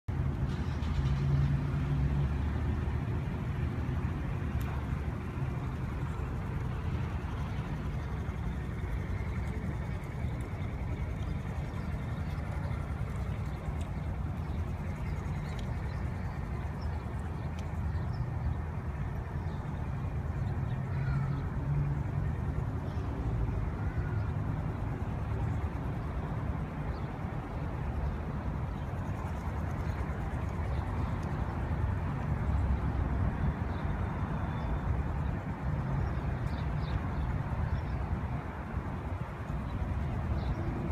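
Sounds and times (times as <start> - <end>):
motorcycle engine running: 3.2 - 21.3.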